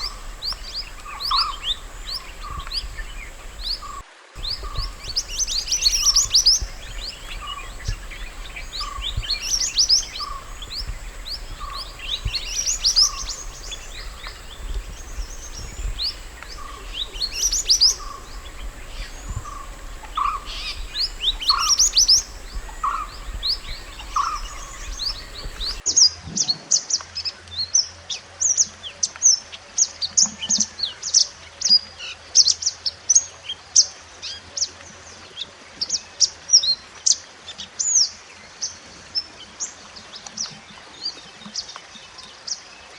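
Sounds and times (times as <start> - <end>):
songbird high quick chirps: 0.0 - 25.8.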